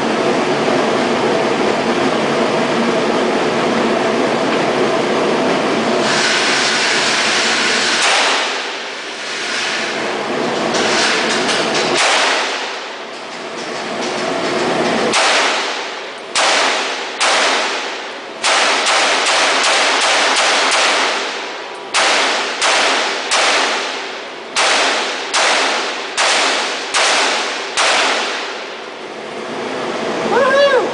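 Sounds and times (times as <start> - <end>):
rifle shots echoing: 8.0 - 8.9, 12.0 - 12.9, 15.1 - 28.8.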